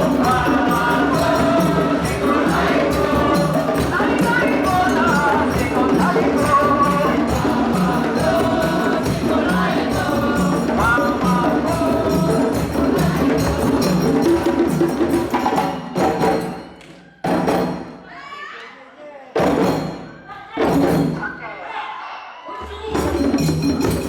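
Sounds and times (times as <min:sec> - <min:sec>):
group singing: 0:00.0 - 0:17.6
parade drums: 0:00.0 - 0:18.1, 0:19.4 - 0:21.5, 0:22.6 - 0:24.0.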